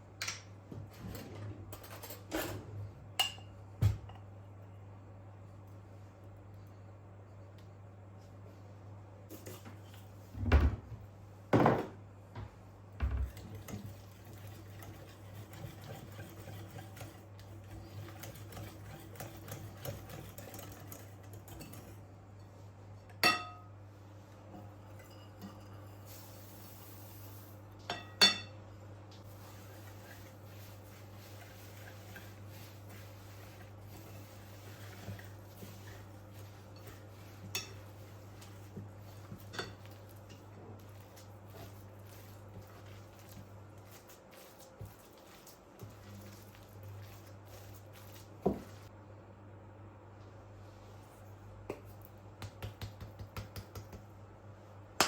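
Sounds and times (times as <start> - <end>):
dishes clinking: 23.2 - 23.7.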